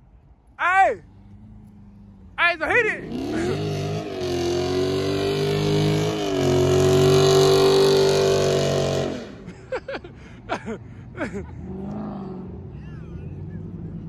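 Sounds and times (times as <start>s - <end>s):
car engine accelerating hard: 1.0s - 9.6s, 11.4s - 14.0s.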